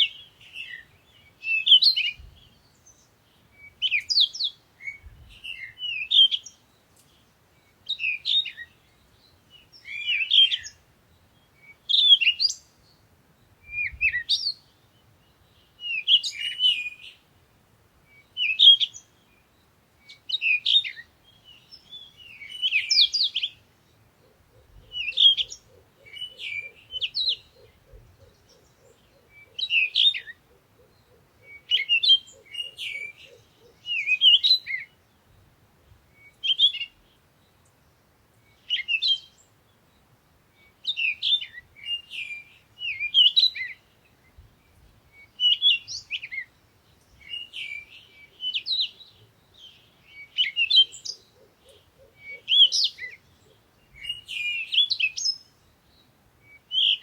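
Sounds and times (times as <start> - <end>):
songbird chirping: 0.0 - 57.0.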